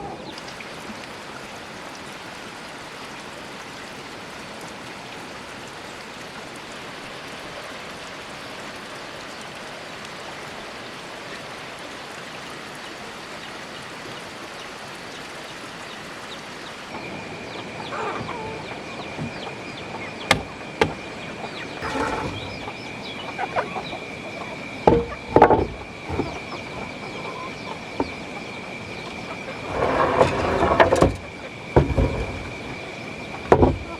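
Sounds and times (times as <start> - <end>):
poultry clucking: 17.6 - 33.9
sharp knocks: 20.3 - 21.0, 24.8 - 26.4, 29.8 - 32.6, 33.5 - 33.9.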